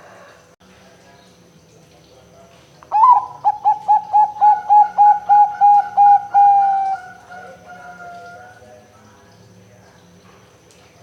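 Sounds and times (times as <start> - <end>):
dove cooing: 2.9 - 8.6.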